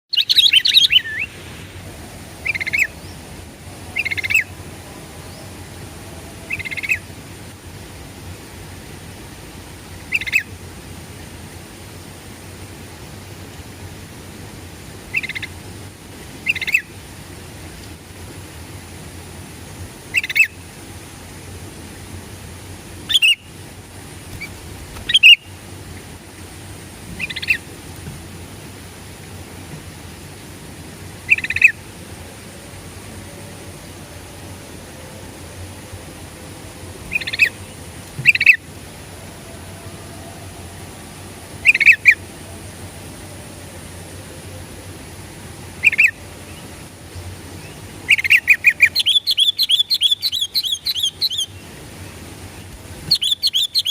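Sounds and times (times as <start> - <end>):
bird singing bubbly notes: 0.1 - 1.4, 24.4 - 25.5, 48.1 - 51.6, 53.1 - 53.9
bulbul calling: 0.1 - 1.4, 2.4 - 3.2, 3.9 - 4.5, 6.5 - 7.1, 20.1 - 20.6, 23.1 - 23.5, 24.3 - 25.5, 27.2 - 27.6, 37.1 - 37.6, 38.2 - 38.6, 41.6 - 42.2, 45.8 - 46.2, 48.1 - 51.6, 53.0 - 53.9.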